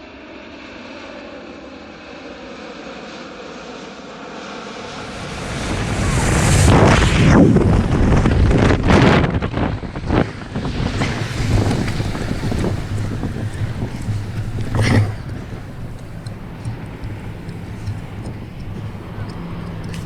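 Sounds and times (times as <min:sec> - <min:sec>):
wind buffeting microphone: 0:05.5 - 0:20.0.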